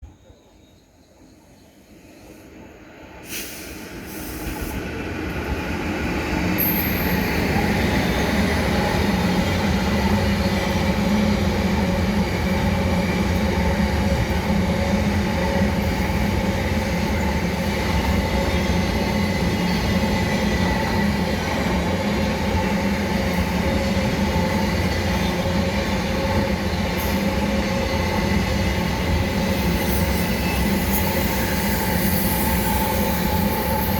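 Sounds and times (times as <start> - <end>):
freight train rolling past: 0.1 - 33.9.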